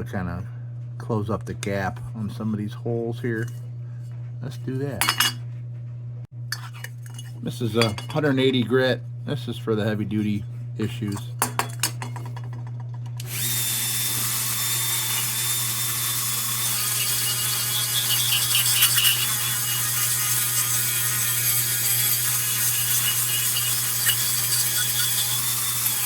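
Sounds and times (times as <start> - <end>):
low steady hum: 0.0 - 15.8
power sander whirring: 13.2 - 26.0.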